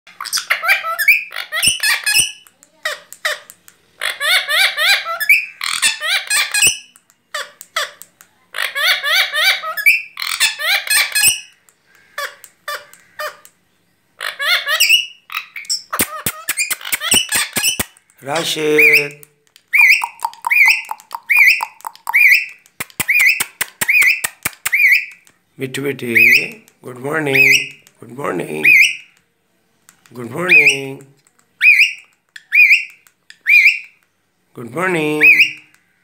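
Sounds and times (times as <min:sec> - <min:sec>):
parrot chattering: 0:00.1 - 0:13.6, 0:14.2 - 0:25.4, 0:26.0 - 0:29.2, 0:29.8 - 0:34.0
sharp clicks: 0:02.3 - 0:03.8, 0:15.7 - 0:18.5, 0:19.1 - 0:25.4, 0:29.1 - 0:34.2.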